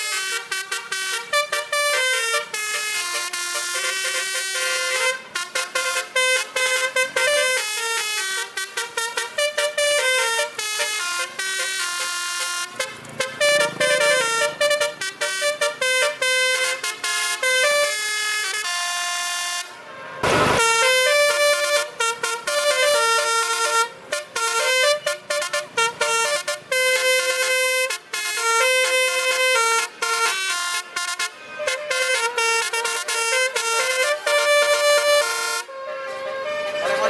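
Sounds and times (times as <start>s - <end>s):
truck horn playing a melody: 0.0s - 37.0s
burst of noise: 19.8s - 21.4s.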